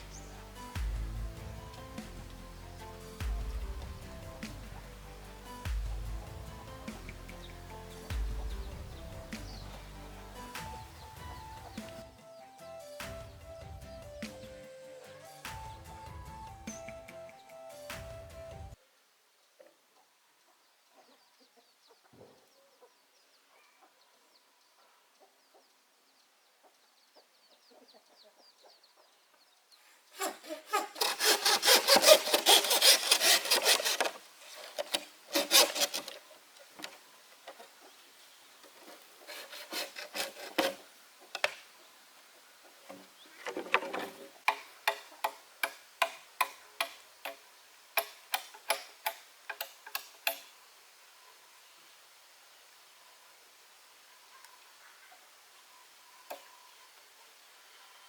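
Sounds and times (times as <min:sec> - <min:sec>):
hand saw cutting wood: 0:00.0 - 0:12.1, 0:30.2 - 0:37.0, 0:38.7 - 0:41.6, 0:48.0 - 0:50.4.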